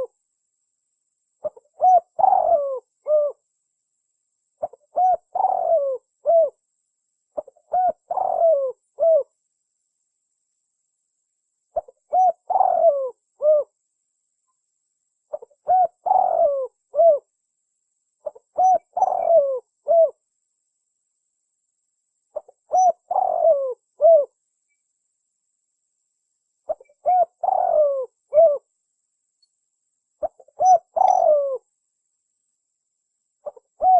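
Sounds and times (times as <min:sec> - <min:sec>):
dove cooing: 0:01.4 - 0:03.4, 0:04.6 - 0:06.6, 0:07.4 - 0:09.3, 0:11.8 - 0:13.8, 0:15.3 - 0:17.3, 0:18.2 - 0:20.2, 0:22.4 - 0:24.4, 0:26.7 - 0:28.7, 0:30.2 - 0:31.7, 0:33.4 - 0:33.9.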